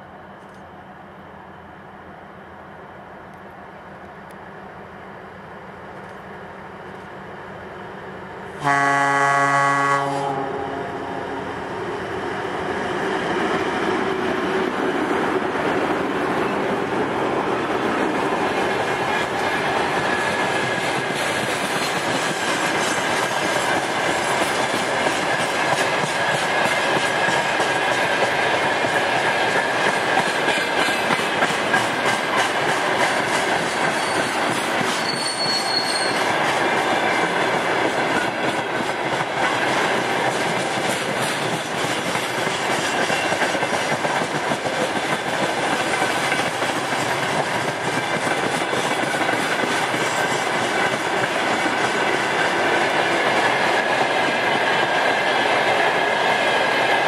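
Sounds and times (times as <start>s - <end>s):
diesel locomotive passing: 0.0s - 57.0s
wheels clacking over rail joints: 17.7s - 55.0s
faint wheel squeal: 34.0s - 36.3s.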